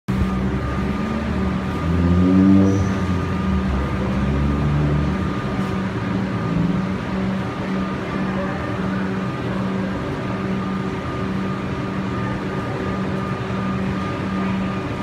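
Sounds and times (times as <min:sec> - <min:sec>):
diesel train engine drone: 0:00.1 - 0:15.0.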